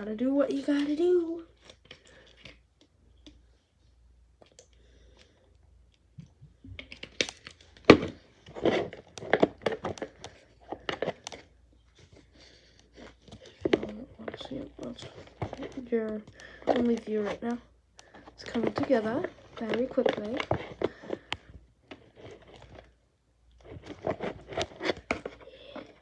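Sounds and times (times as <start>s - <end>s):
pencil squelching in slime: 7.0s - 23.0s, 23.6s - 26.0s.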